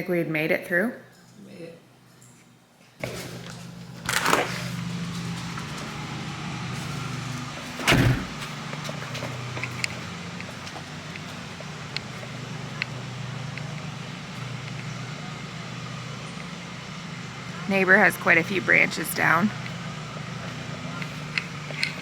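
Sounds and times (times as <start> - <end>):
car engine humming: 4.7 - 22.0
loud thump: 7.9 - 8.5.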